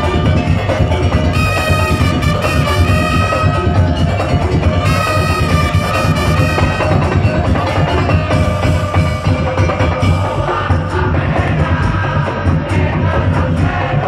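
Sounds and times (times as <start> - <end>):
sustained melody line: 0.0 - 11.0
slit drums and drums beating: 0.0 - 14.0.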